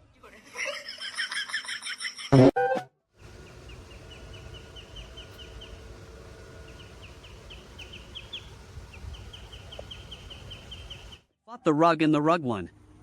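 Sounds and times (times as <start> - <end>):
steady low rumble: 3.2 - 11.2
bird chirping: 3.2 - 11.3.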